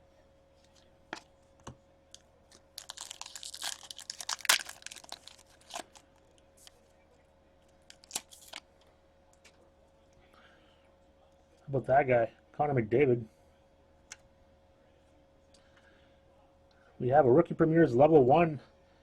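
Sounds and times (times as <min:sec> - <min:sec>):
foil wrapper tearing and crinkling: 0:02.8 - 0:06.0, 0:07.9 - 0:08.6.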